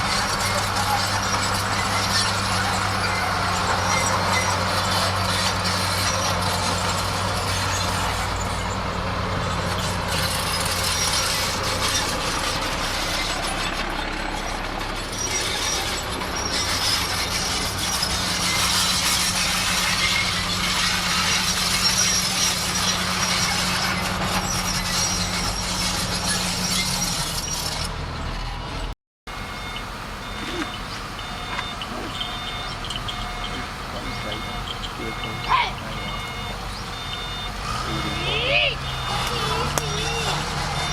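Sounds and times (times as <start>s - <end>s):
tracks and blade scraping dirt: 0.0s - 28.9s, 30.2s - 40.9s
bulldozer diesel engine: 0.0s - 40.9s
reversing alarm beeping: 29.3s - 40.9s.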